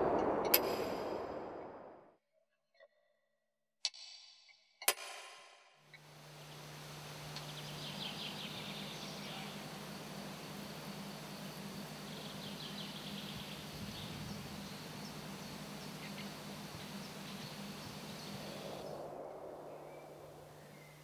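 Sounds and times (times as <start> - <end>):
low hum: 0.0 - 2.0, 6.0 - 21.0
steady hiss: 6.0 - 21.0
faint bird chirps: 7.3 - 10.5, 12.0 - 21.0.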